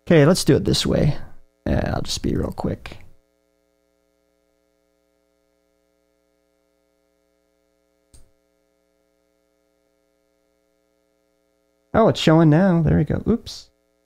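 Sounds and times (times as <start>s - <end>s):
faint electrical hum: 0.0s - 14.0s
short click: 8.1s - 8.4s.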